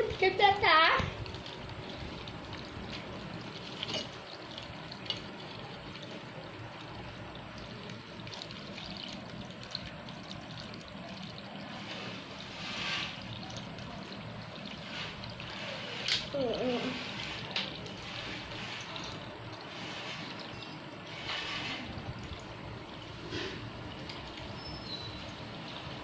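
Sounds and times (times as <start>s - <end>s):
fountain water trickling: 0.0s - 26.0s.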